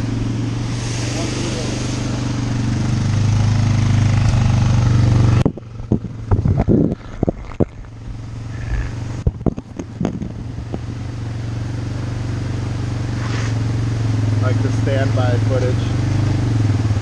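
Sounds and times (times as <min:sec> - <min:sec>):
engine idling: 0:00.0 - 0:17.0
knocks and scrapes near microphone: 0:05.4 - 0:08.0, 0:08.6 - 0:10.9.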